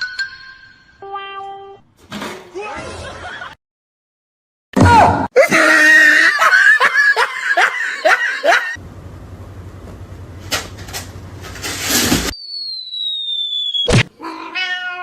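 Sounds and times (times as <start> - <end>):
person laughing hard: 5.4 - 8.8
low steady hum: 8.8 - 11.8.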